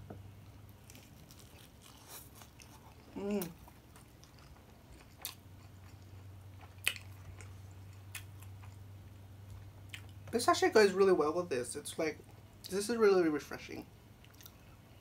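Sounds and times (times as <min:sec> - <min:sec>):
crunchy chewing: 0:00.5 - 0:10.2
person humming mmm: 0:03.1 - 0:03.6.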